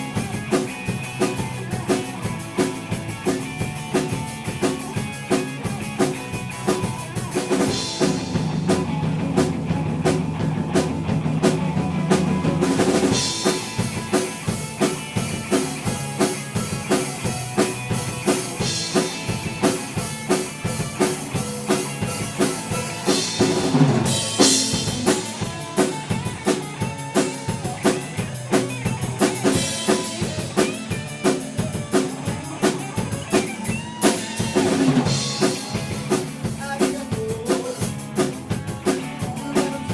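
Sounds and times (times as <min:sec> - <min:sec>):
drum kit beat: 0:00.0 - 0:39.9
live rock band playing: 0:00.0 - 0:39.9.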